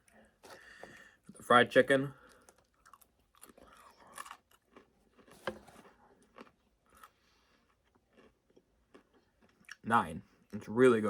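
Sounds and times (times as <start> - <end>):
person chewing crunchy food: 2.2 - 9.8.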